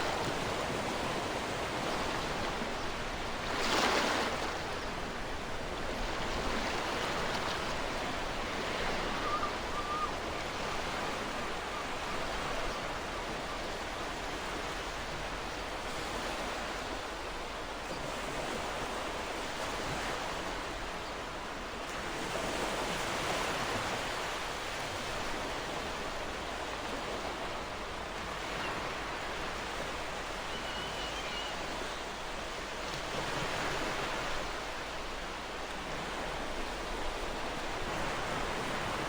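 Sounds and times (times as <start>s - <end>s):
ocean waves breaking on shore: 0.0s - 39.0s.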